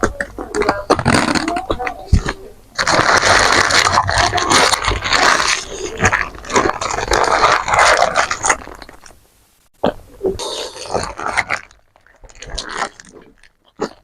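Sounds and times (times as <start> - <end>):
crunching and chewing food: 0.0 - 9.2, 9.8 - 14.0.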